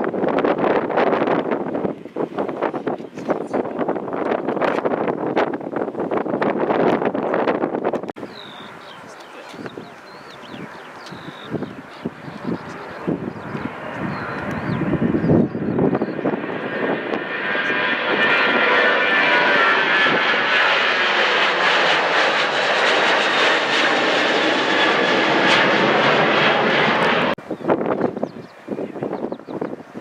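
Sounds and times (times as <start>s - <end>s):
jet engines rushing and whining: 0.0s - 30.0s.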